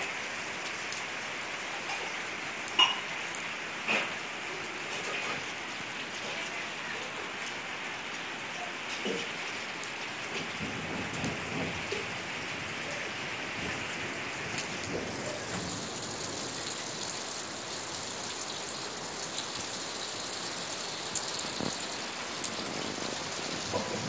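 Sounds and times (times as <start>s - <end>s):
steady rain: 0.0s - 24.0s
raindrop hits: 9.0s - 24.0s.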